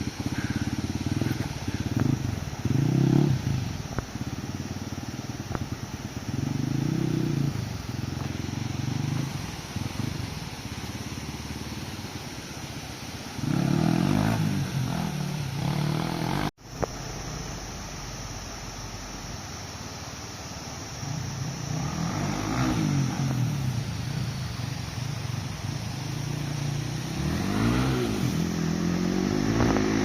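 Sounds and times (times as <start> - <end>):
dirt bike engine revving: 0.0 - 3.8, 6.2 - 10.4, 13.3 - 16.5, 21.5 - 24.2, 25.4 - 30.0.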